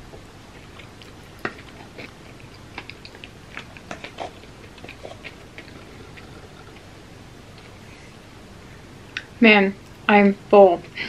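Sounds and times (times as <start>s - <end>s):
wet mouth chewing clicks: 0.6s - 6.9s.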